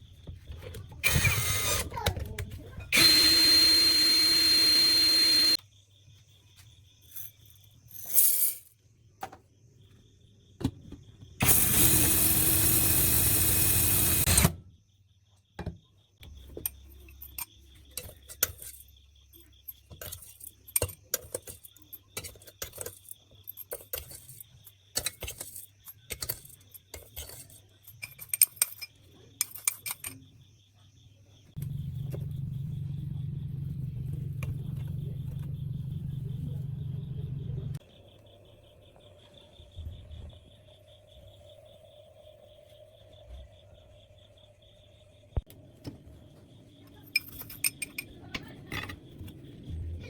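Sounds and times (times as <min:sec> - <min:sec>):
power tool running: 0:01.0 - 0:01.9, 0:02.9 - 0:05.6, 0:11.4 - 0:14.5
motor humming: 0:01.0 - 0:02.2, 0:02.9 - 0:05.6, 0:11.4 - 0:14.5
metal parts clinking: 0:47.1 - 0:48.1.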